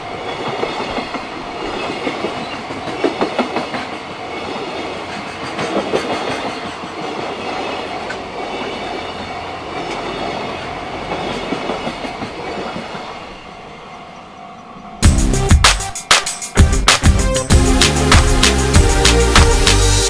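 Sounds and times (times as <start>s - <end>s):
train wheels clattering over rail joints: 0.3s - 13.4s.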